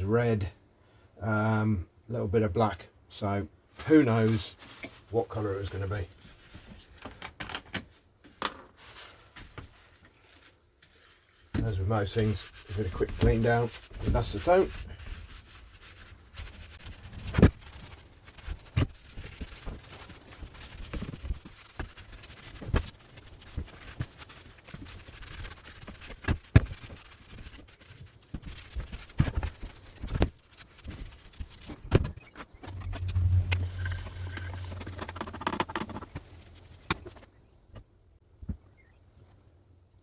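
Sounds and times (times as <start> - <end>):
faint rubbing: 11.0 - 37.2.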